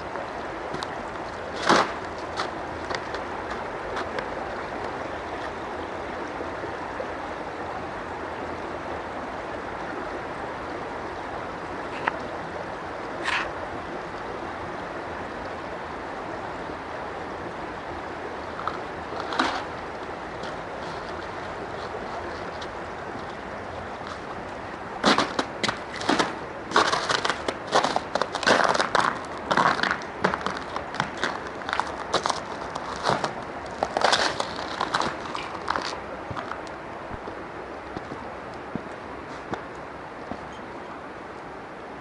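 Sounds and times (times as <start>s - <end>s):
flowing water rushing: 0.0s - 42.0s.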